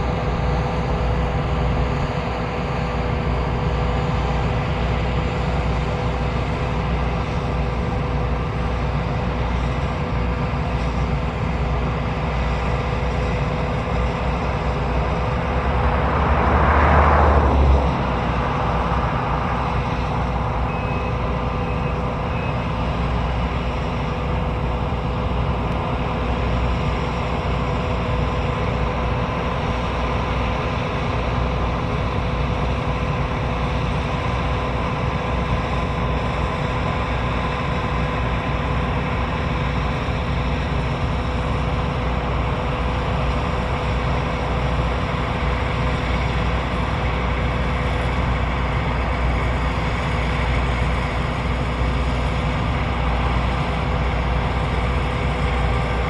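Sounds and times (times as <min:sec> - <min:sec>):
combine harvester running: 0:00.0 - 0:56.0
faint high beeps: 0:20.7 - 0:22.6.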